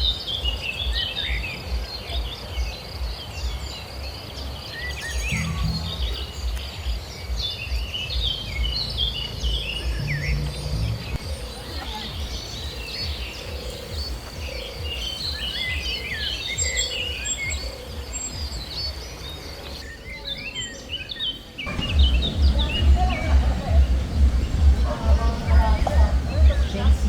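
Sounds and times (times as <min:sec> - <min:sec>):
small birds chirping: 0:00.0 - 0:27.0
low outdoor rumble: 0:05.3 - 0:06.5, 0:21.7 - 0:27.0
pulsing music beat: 0:05.3 - 0:07.1, 0:21.7 - 0:27.0.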